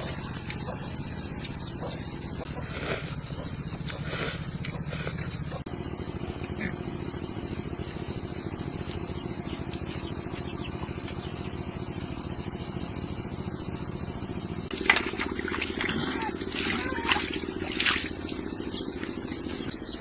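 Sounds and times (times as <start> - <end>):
small engine chugging: 0.0 - 20.0.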